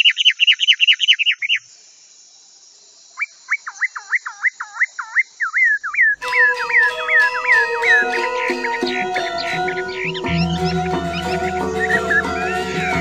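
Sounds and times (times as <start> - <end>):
birds chirping: 4.0 - 13.0.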